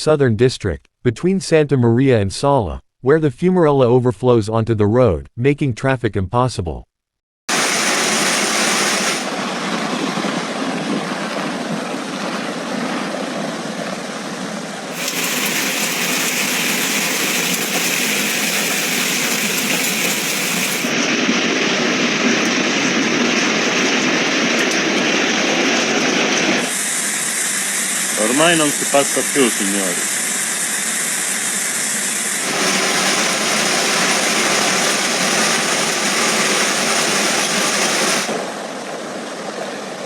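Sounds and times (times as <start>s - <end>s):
floodwater rushing: 7.5s - 10.0s, 14.9s - 26.8s, 32.4s - 39.0s.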